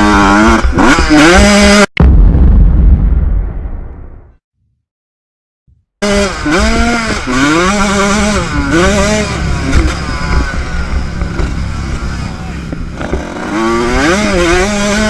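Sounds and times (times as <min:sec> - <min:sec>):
motocross bike engine revving: 0:00.0 - 0:01.9, 0:06.0 - 0:15.0.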